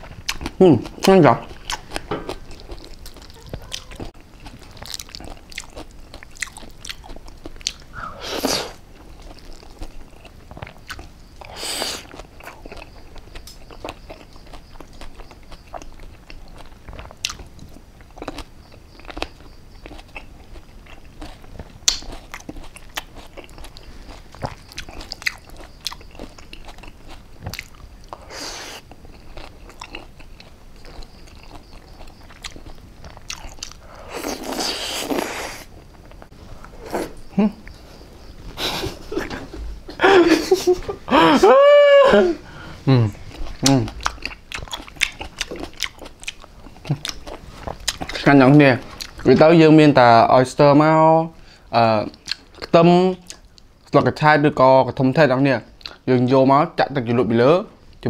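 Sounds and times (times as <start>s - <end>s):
person chewing salad: 0.0s - 41.3s, 42.6s - 49.4s, 52.0s - 54.0s, 55.8s - 56.1s
wet crunching clicks: 21.3s - 23.7s
mouth noises: 36.6s - 45.0s.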